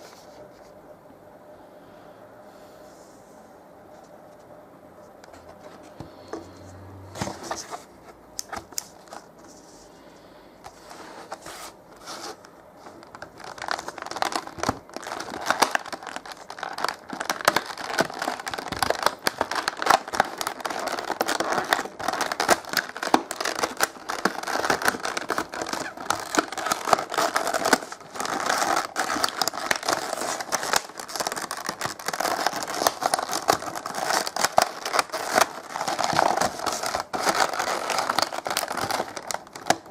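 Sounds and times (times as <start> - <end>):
packaging crinkling and tearing: 11.2 - 39.9.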